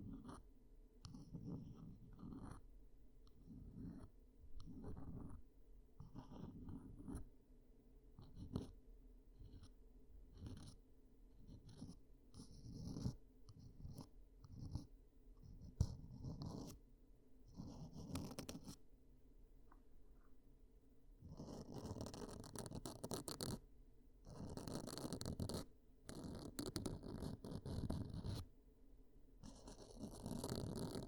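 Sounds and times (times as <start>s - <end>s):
tool scratching on microphone: 29.5s - 31.0s.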